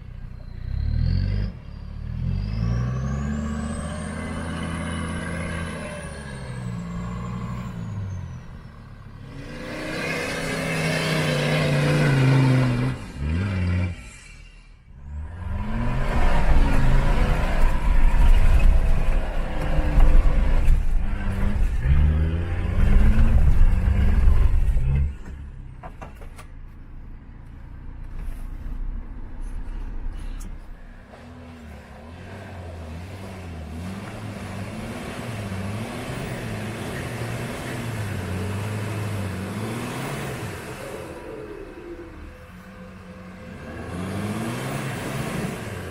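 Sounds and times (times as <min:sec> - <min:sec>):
quieter engine revving: 0:27.5 - 0:45.9
engine revving hard: 0:43.6 - 0:45.9.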